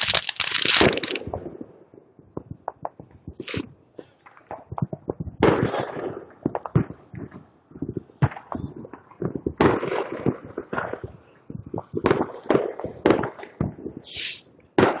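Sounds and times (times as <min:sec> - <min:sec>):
firework hiss: 0:00.0 - 0:01.2, 0:03.3 - 0:03.7, 0:14.0 - 0:14.5
fireworks crackling bursts: 0:00.0 - 0:15.0
fireworks popping and cracking: 0:00.0 - 0:15.0.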